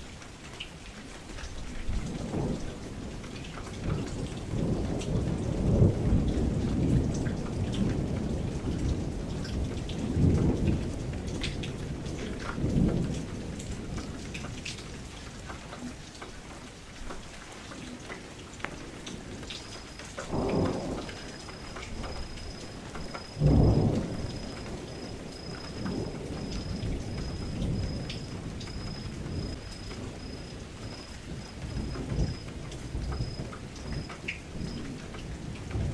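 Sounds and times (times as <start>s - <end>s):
rain against a window: 0.0s - 35.9s
thunder rumbling: 1.9s - 16.0s, 18.2s - 35.9s.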